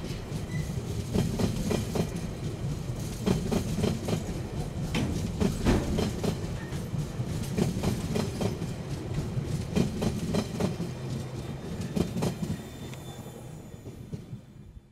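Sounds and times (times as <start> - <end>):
train low rumble: 0.0 - 14.9
wheel clacks over rail joints: 3.2 - 12.5.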